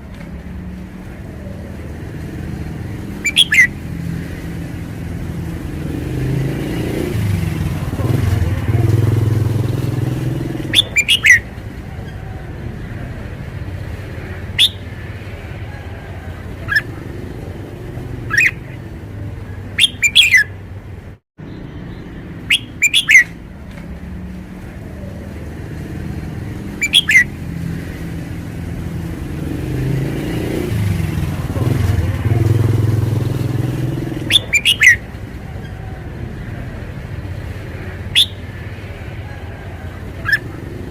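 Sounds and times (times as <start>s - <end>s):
bird singing clear phrases: 1.0s - 7.2s, 9.8s - 20.6s, 21.4s - 28.2s, 33.4s - 36.8s, 37.7s - 40.9s.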